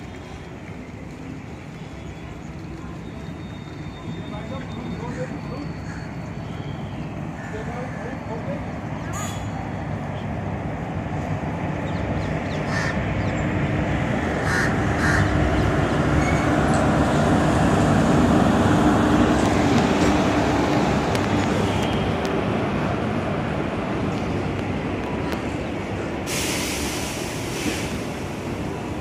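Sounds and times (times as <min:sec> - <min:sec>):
electric locomotive hum: 0:00.0 - 0:29.0
train coaches rumbling: 0:00.0 - 0:29.0
crow cawing: 0:12.7 - 0:13.0, 0:14.4 - 0:15.3.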